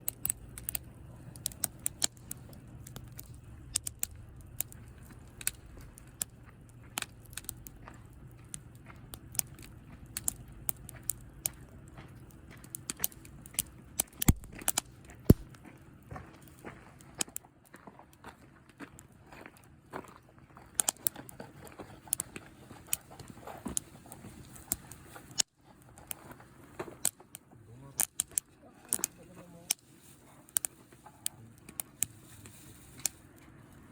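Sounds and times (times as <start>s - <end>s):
campfire crackling and popping: 0.0s - 15.6s, 28.0s - 29.8s, 30.5s - 30.8s
low rumble of fire: 0.0s - 17.6s, 19.0s - 33.9s.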